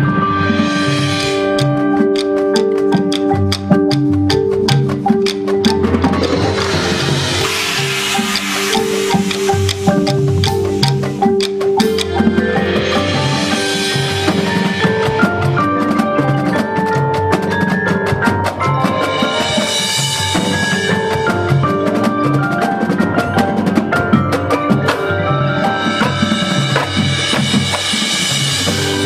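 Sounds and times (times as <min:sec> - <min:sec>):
drums: 0:00.0 - 0:29.0
mallet percussion: 0:00.0 - 0:29.0
high hiss: 0:06.6 - 0:10.4.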